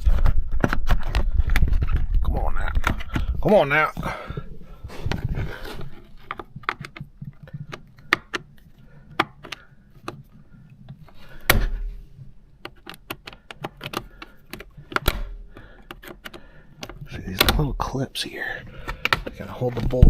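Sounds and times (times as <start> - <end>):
tools clicking and tapping: 6.2 - 10.3, 12.6 - 17.6.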